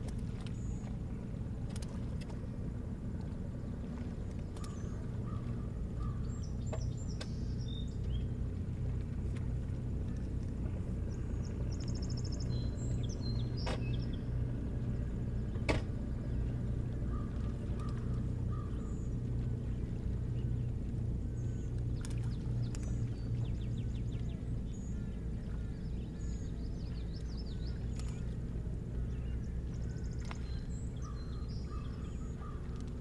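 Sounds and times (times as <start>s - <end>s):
steady low rumble: 0.0s - 33.0s
small birds chirping: 4.5s - 8.4s, 11.0s - 33.0s.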